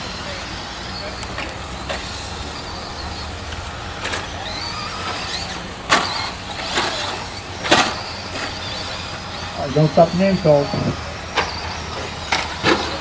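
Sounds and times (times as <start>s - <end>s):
electric motors whining: 0.0s - 13.0s
running gear and tyres drone: 0.0s - 13.0s
plastic trucks clacking: 3.5s - 9.0s, 10.7s - 13.0s.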